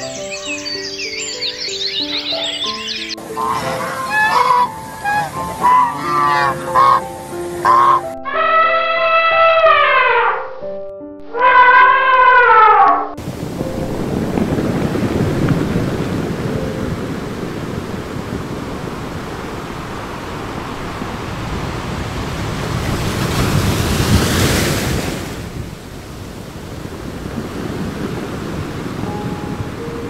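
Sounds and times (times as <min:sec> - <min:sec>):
ocean surf waves washing: 0:00.0 - 0:08.1, 0:13.2 - 0:30.0
wave breaking: 0:12.8 - 0:30.0.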